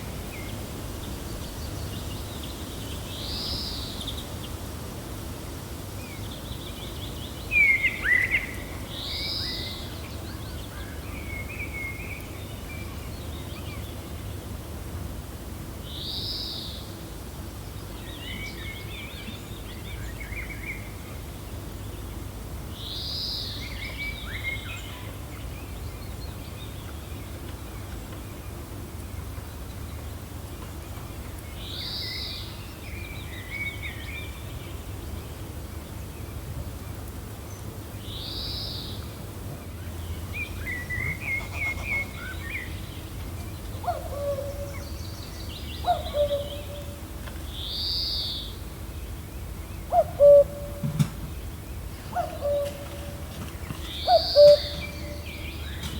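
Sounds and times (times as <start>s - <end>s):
low wind rumble: 0.0s - 7.8s
songbirds calling: 0.0s - 15.1s, 15.7s - 55.9s.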